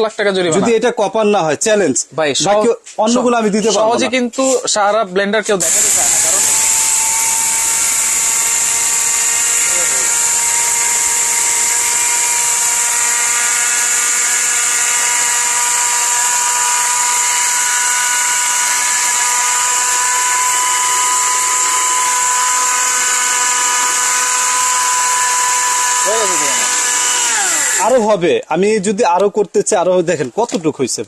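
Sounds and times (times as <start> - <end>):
blender motor whining: 5.6 - 28.2.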